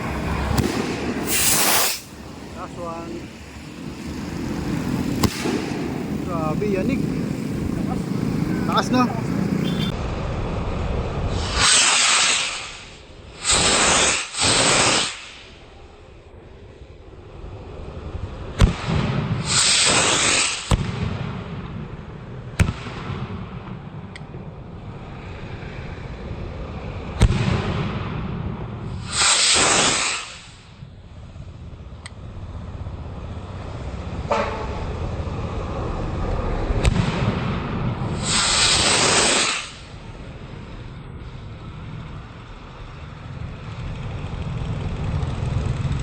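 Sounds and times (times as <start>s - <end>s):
firework hissing rushes: 0.0s - 10.0s, 11.2s - 15.9s, 18.6s - 21.3s, 28.9s - 30.9s, 36.8s - 43.0s
firework shells bursting: 0.4s - 2.3s, 5.1s - 6.6s, 11.4s - 15.6s, 18.6s - 21.7s, 28.9s - 30.9s, 36.8s - 40.1s.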